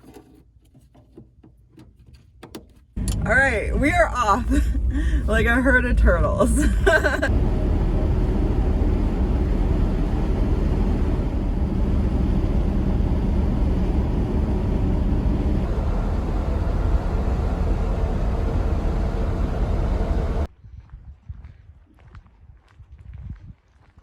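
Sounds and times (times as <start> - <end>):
road noise: 3.0 - 20.5
van engine rumbling: 3.0 - 20.5.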